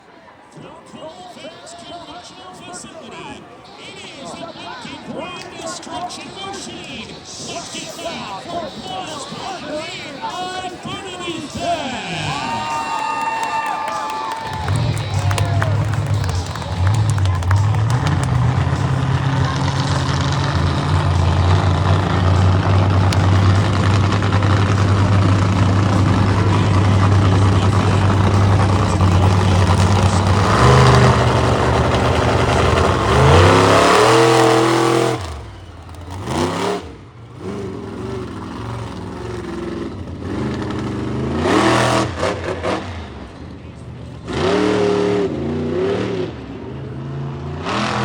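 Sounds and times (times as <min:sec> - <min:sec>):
monster truck engine revving: 0:10.1 - 0:48.0.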